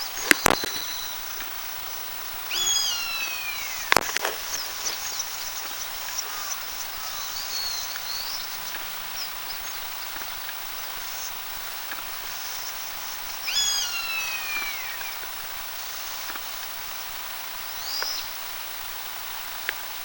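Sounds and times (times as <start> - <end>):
faint high chirps: 0.0 - 1.4, 2.5 - 10.4
buzzard alarm call: 2.4 - 10.2.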